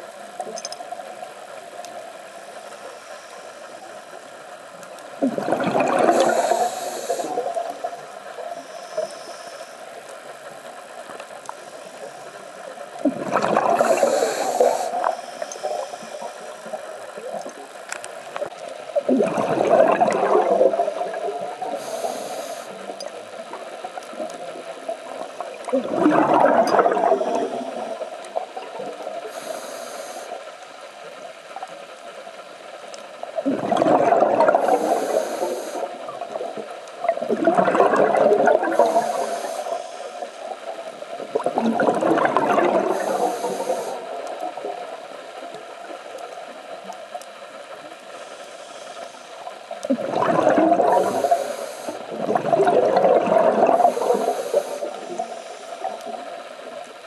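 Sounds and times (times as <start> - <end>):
gurgling exhaled bubbles: 5.2 - 8.6, 13.0 - 15.9, 19.0 - 22.2, 24.1 - 29.5, 33.4 - 39.6, 40.6 - 45.0, 49.8 - 56.3
regulator hissing: 6.1 - 7.5, 13.8 - 16.8, 38.8 - 40.4, 42.9 - 44.0, 51.0 - 52.0.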